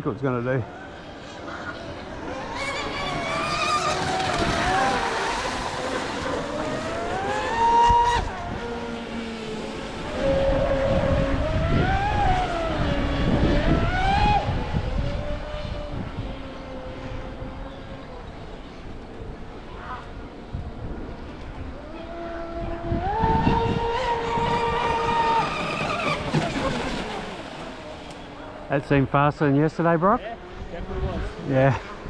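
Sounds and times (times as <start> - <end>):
electric speedboat motors whining: 0.3 - 32.0
hull and spray rushing: 2.4 - 15.0, 23.1 - 30.0.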